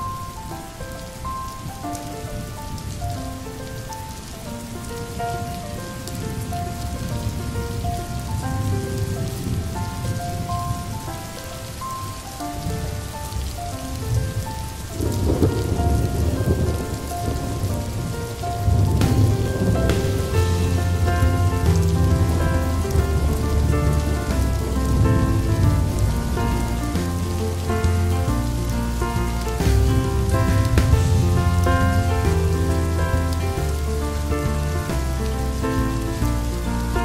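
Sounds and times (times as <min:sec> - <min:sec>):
gentle melody of held notes: 0:00.0 - 0:37.0
steady rainfall: 0:00.0 - 0:37.0
low rumble of thunder: 0:01.2 - 0:37.0.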